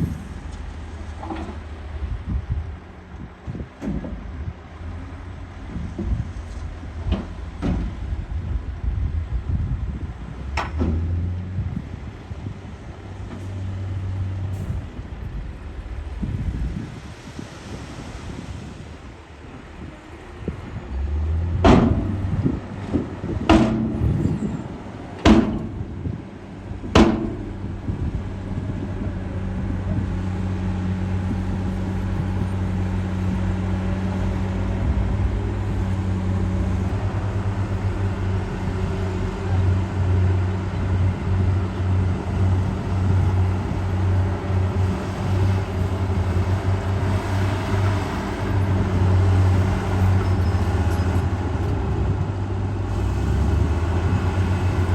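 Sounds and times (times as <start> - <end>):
diesel machinery engine drone: 0.0 - 54.9.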